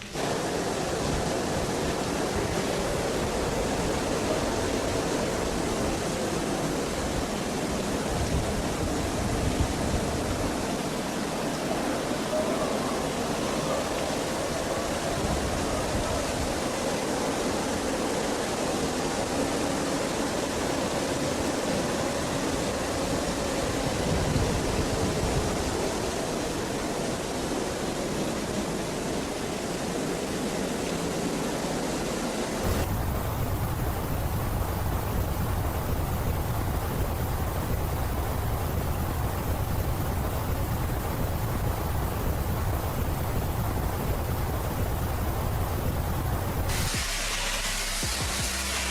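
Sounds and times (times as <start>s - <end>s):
pressure washer spray hissing: 32.6s - 39.0s, 42.0s - 48.9s.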